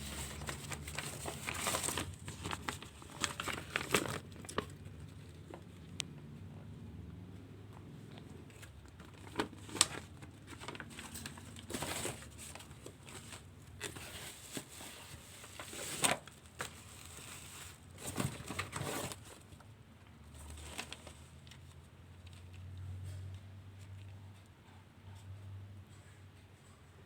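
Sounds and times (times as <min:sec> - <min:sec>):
packaging rustling and crinkling: 0:00.0 - 0:05.8, 0:08.5 - 0:19.6, 0:20.3 - 0:22.6.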